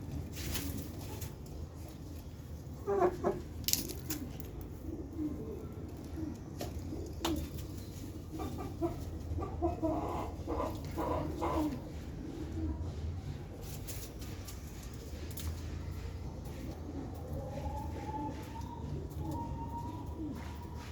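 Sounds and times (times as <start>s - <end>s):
chickens clucking: 0.1s - 20.9s.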